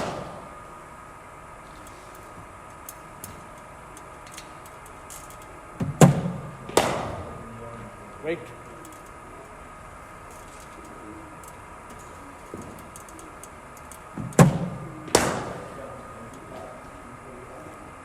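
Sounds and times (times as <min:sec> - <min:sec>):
bat striking ball: 0:00.0 - 0:00.5, 0:05.8 - 0:07.5, 0:14.2 - 0:15.8
bowling machine firing ball: 0:00.0 - 0:00.7, 0:05.8 - 0:07.6, 0:12.2 - 0:16.0
faint steady hum: 0:00.0 - 0:18.0.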